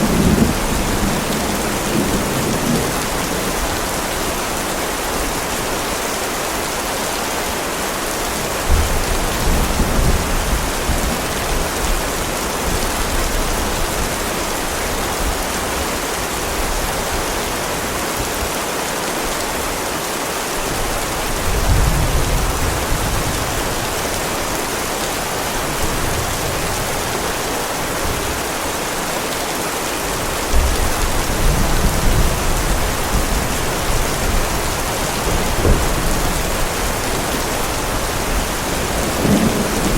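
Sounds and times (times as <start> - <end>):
low rolls of thunder: 0.0 - 4.0, 30.5 - 39.9
heavy rain falling: 0.0 - 39.9.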